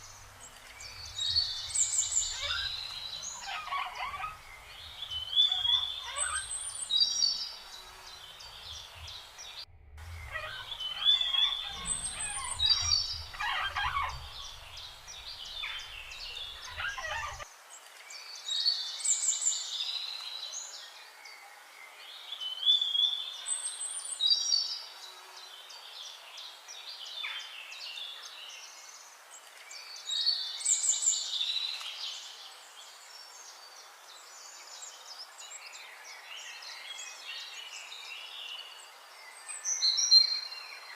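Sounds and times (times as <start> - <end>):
soft bird chirping: 0.0 - 17.4
songbird chirps and trills: 0.0 - 40.9.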